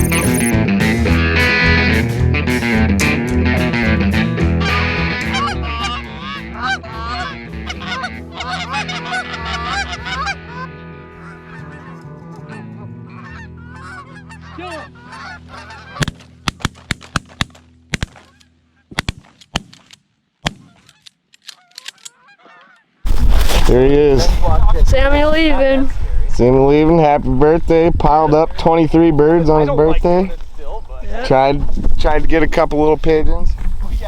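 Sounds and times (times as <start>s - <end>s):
geese honking: 4.1s - 16.6s, 18.0s - 19.0s, 20.5s - 23.0s
sharp cracks: 16.0s - 22.2s.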